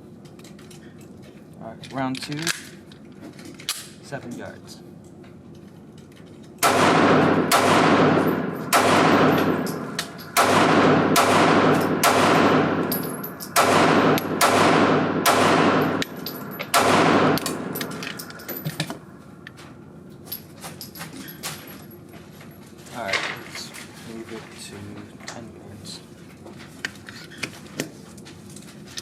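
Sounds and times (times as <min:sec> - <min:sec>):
pistol shots with ringing tail: 0:06.6 - 0:18.6.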